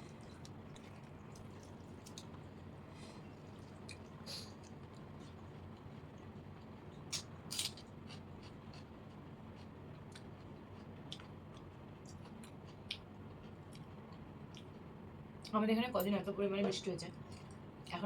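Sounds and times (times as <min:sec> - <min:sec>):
low steady background noise: 0:00.0 - 0:18.0
wet eating clicks and smacks: 0:00.1 - 0:02.5, 0:03.5 - 0:05.9, 0:09.6 - 0:14.8.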